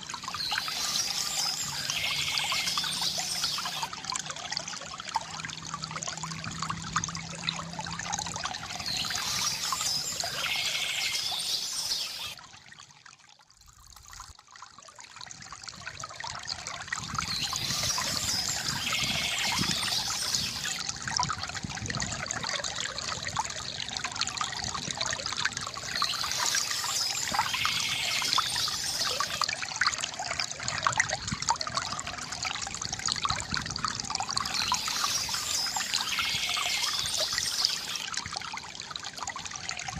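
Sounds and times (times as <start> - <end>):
river water gurgling: 0.0 - 39.9
birds chirping: 0.3 - 3.9, 8.8 - 12.4, 17.2 - 20.8, 25.8 - 29.4, 34.5 - 38.0.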